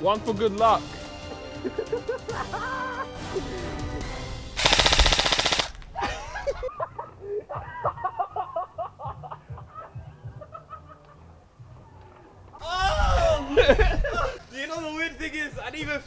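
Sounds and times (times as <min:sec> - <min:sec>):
airsoft rifle full-auto burst: 0:04.5 - 0:06.6.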